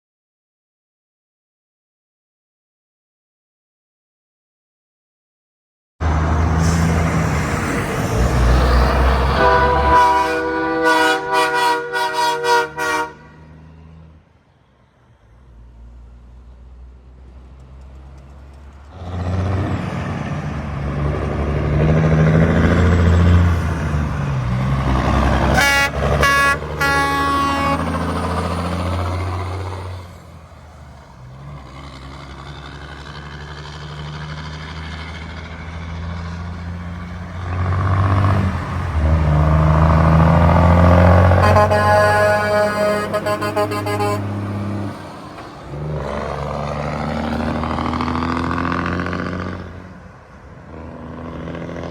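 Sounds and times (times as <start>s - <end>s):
trucks passing: 6.0s - 51.9s
truck horn blasts: 8.8s - 13.6s, 25.2s - 28.6s, 40.3s - 44.9s.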